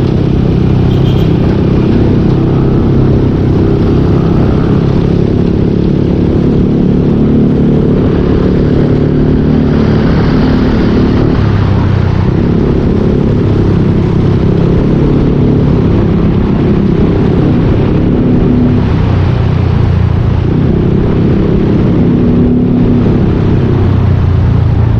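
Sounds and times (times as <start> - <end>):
scooter engine running: 0.0 - 9.7.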